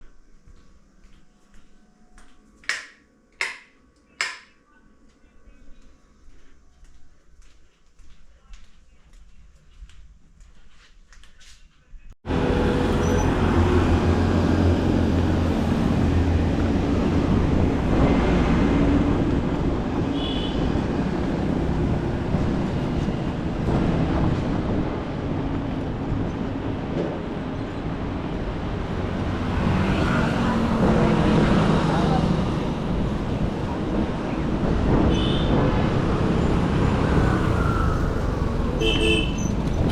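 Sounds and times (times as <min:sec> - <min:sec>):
road noise: 0:12.2 - 0:39.9
wind buffeting microphone: 0:14.0 - 0:39.9.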